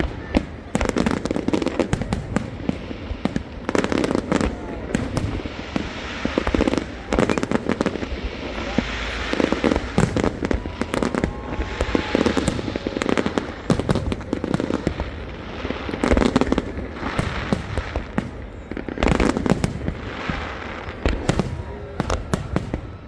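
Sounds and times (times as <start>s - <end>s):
firework crackling: 0.0s - 23.0s.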